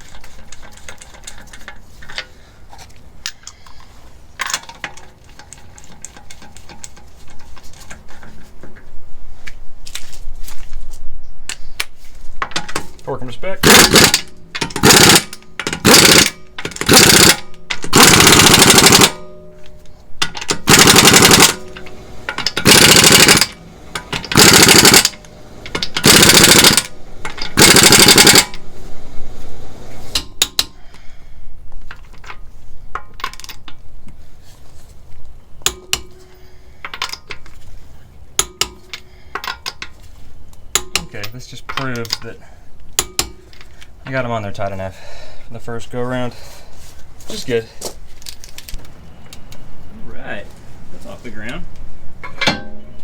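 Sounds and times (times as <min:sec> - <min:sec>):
metal tools clinking: 0:00.0 - 0:08.9, 0:12.4 - 0:28.7, 0:35.6 - 0:44.2, 0:47.3 - 0:48.9
impact wrench hammering: 0:13.6 - 0:19.6, 0:20.2 - 0:28.7, 0:30.1 - 0:30.8, 0:35.6 - 0:37.2, 0:38.4 - 0:39.9, 0:40.7 - 0:41.1, 0:43.0 - 0:43.5.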